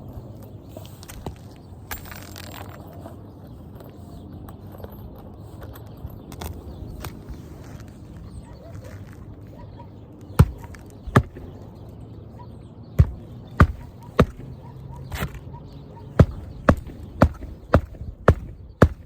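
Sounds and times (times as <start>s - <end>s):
hammer driving nails into shingles: 10.4s - 11.6s, 13.0s - 15.4s, 16.2s - 19.0s.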